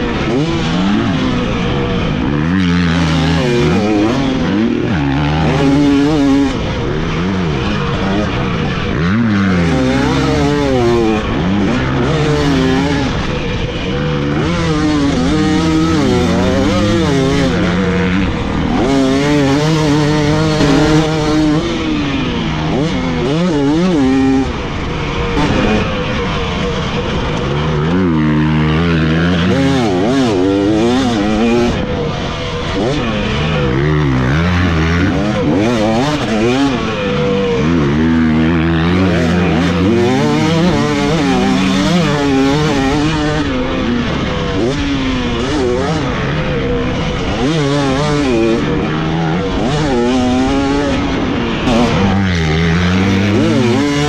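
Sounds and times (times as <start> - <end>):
dirt bike engine revving: 14.4 - 24.5, 47.0 - 54.0
steady rush of noise: 20.5 - 22.6.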